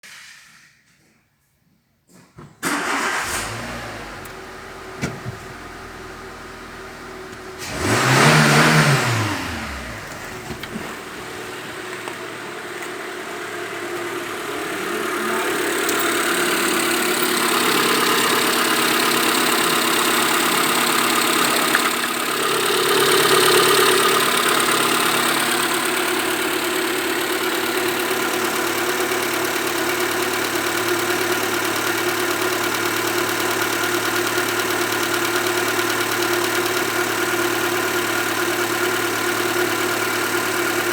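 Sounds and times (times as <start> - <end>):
car engine idling: 2.7 - 40.9.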